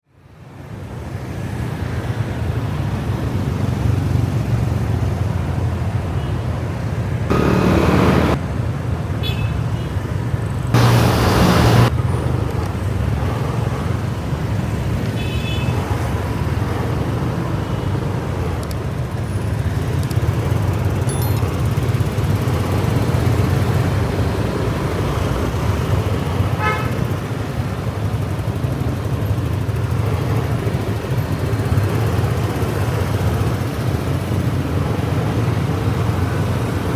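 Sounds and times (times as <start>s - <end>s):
motorcycle engine running: 7.3s - 8.4s, 10.8s - 11.9s
rushing bursts: 7.3s - 8.4s, 10.8s - 11.9s
vehicle horn beeps: 7.3s - 8.4s, 10.8s - 11.9s.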